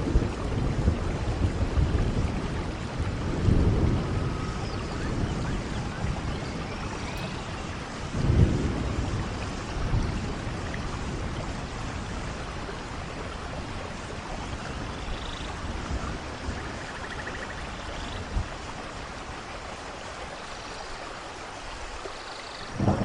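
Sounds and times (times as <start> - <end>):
steady rain falling: 0.0 - 23.0
low rumbles: 6.1 - 10.7.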